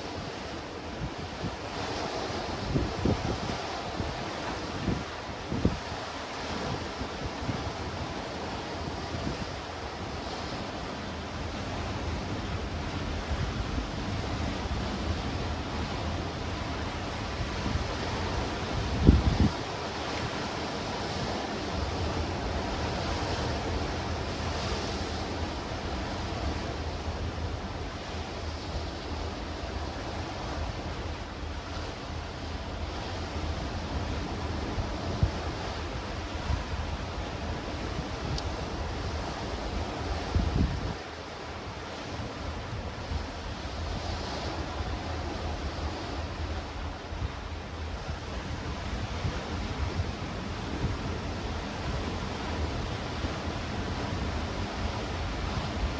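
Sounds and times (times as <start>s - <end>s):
sea waves washing against rocks: 0.0s - 55.9s
wind rumble on microphone: 0.0s - 55.9s.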